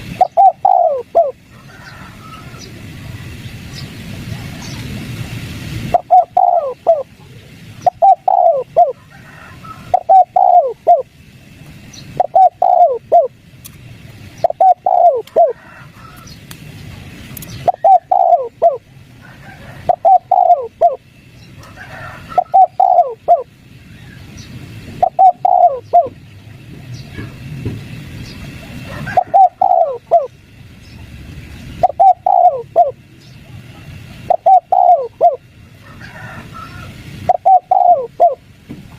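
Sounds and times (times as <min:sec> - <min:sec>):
dove cooing: 0:00.1 - 0:03.0, 0:05.9 - 0:11.2, 0:12.1 - 0:13.4, 0:14.4 - 0:16.2, 0:17.5 - 0:21.0, 0:21.6 - 0:23.6, 0:25.0 - 0:26.2, 0:28.4 - 0:30.4, 0:31.7 - 0:38.5.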